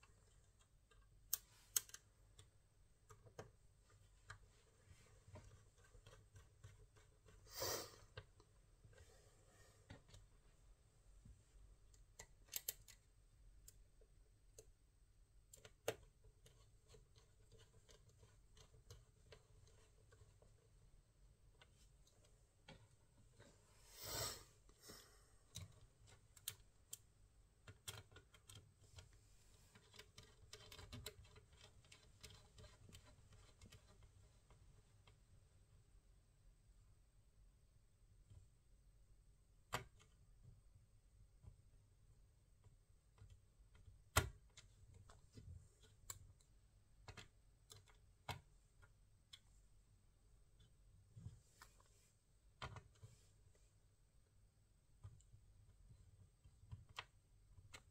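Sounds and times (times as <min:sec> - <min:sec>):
small clicks and light taps: 0:00.0 - 0:09.1, 0:11.2 - 0:14.8, 0:15.4 - 0:23.6, 0:25.4 - 0:35.4, 0:42.5 - 0:49.8, 0:50.4 - 0:53.7, 0:54.9 - 0:57.9
small hard parts clicking: 0:29.7 - 0:34.1.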